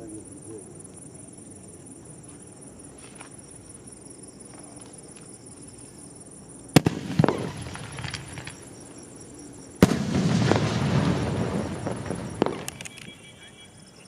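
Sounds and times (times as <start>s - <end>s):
firework bangs: 6.7s - 8.8s, 9.7s - 13.4s
sustained firework crackle: 6.7s - 8.9s, 9.7s - 13.5s.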